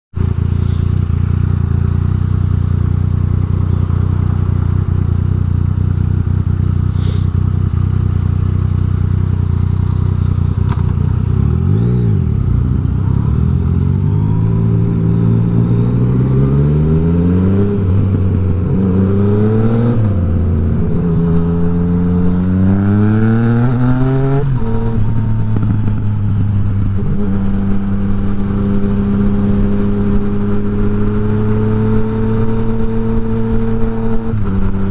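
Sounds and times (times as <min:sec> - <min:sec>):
motorcycle engine revving: 0:00.2 - 0:34.9.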